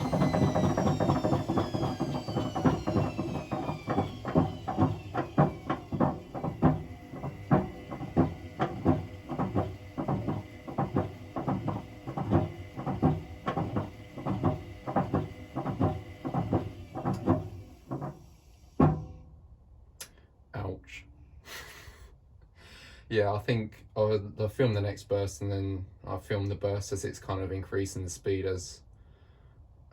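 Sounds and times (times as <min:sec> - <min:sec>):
washing machine drum knocking: 0:00.0 - 0:18.2, 0:18.8 - 0:19.2
faint motor whine: 0:00.0 - 0:19.2.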